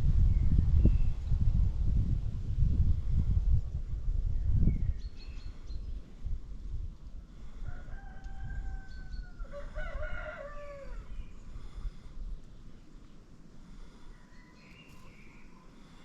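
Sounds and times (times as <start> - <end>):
low wind rumble: 0.0 - 16.0
small birds chirping: 4.2 - 6.2, 8.8 - 9.6, 10.8 - 16.0
rooster crowing: 7.6 - 11.3.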